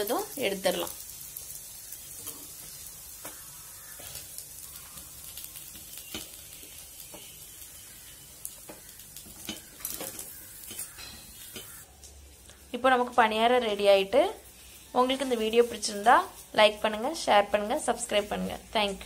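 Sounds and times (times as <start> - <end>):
oil sizzling in a pan: 0.0 - 19.0
spoon scraping a pan: 8.0 - 11.8.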